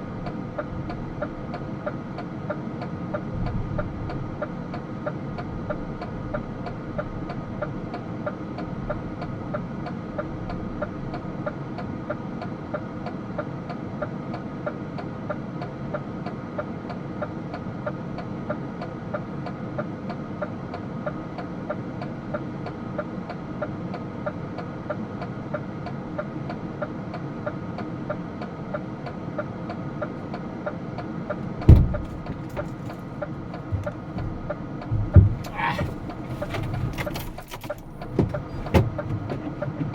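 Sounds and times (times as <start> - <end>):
loud thump: 31.4 - 33.1, 33.7 - 39.6
truck engine running: 31.4 - 39.9.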